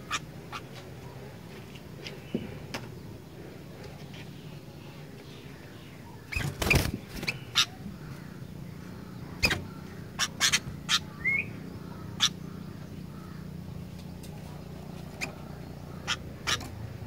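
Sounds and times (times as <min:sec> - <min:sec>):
steady low hum: 0:00.0 - 0:17.0
bulbul chirping: 0:09.4 - 0:13.4.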